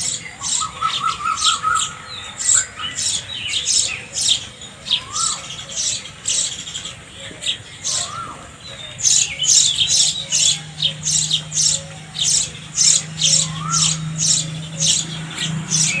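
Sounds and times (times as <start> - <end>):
sparrows chirping: 0.0 - 16.0.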